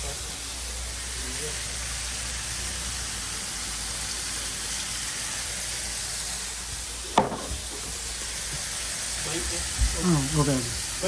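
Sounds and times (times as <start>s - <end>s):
burger patties sizzling on griddle: 0.0s - 11.0s
sharp knock: 7.2s - 7.8s.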